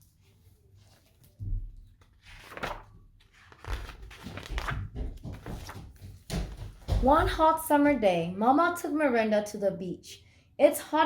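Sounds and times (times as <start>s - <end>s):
paper rustling: 0.0s - 6.8s.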